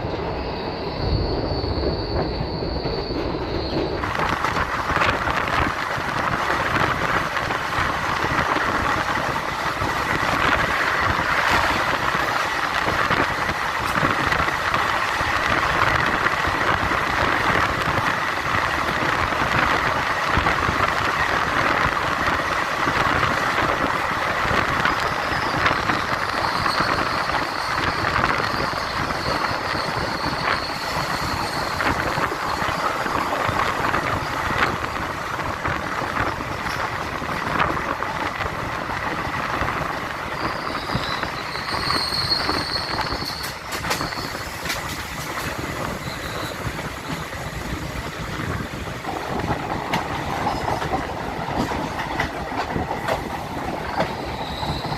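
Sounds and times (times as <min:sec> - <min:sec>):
train rumble and rattle: 0:00.0 - 0:54.9.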